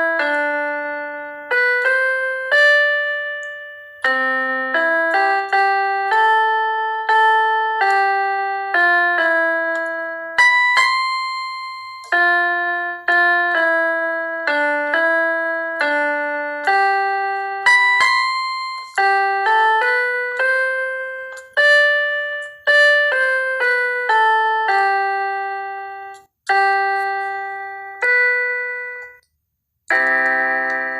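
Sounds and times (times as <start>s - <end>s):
keyboard playing slow chords: 0.0s - 30.9s.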